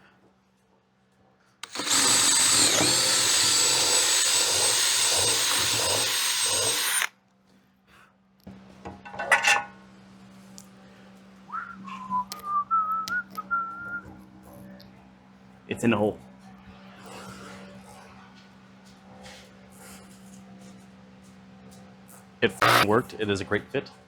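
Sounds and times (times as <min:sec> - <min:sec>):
power drill boring wood: 0:01.6 - 0:07.1, 0:22.6 - 0:22.9
person whistling: 0:11.5 - 0:14.0.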